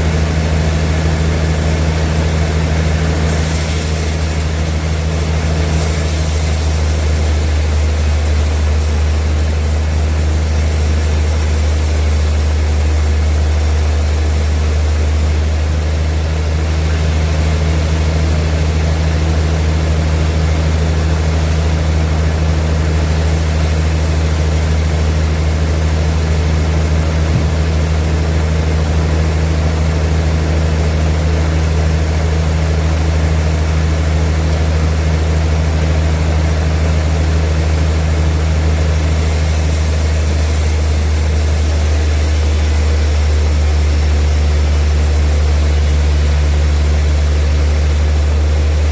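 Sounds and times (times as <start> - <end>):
sawmill machinery humming: 0.0 - 48.9.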